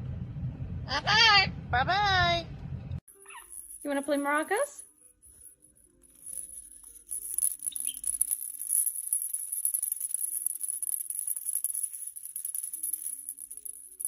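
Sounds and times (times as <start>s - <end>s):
maraca rattling: 3.1s - 14.0s.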